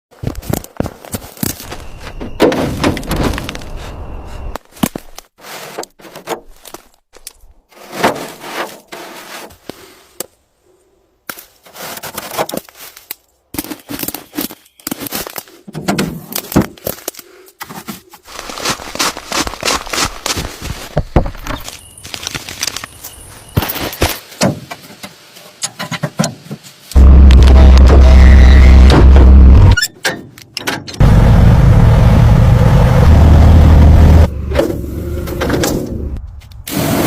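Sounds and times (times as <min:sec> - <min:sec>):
scraping or rustling noise: 0:07.7 - 0:10.0, 0:17.6 - 0:25.6.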